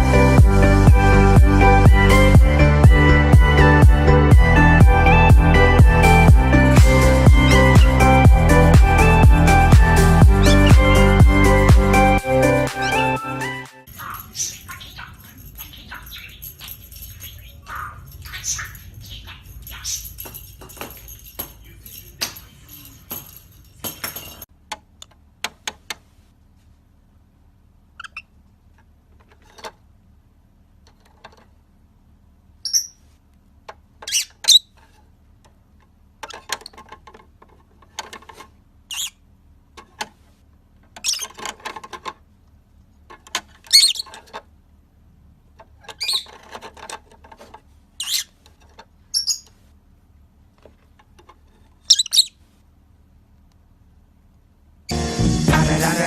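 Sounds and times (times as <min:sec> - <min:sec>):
parrot squawks and whistles: 0:32.7 - 0:33.0, 0:43.7 - 0:44.1, 0:46.0 - 0:46.3, 0:51.9 - 0:52.4.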